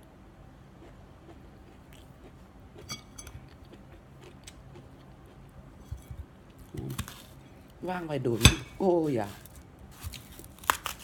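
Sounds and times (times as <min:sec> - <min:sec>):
quiet chewing: 0:00.8 - 0:07.5
knife cutting onion: 0:06.7 - 0:07.3.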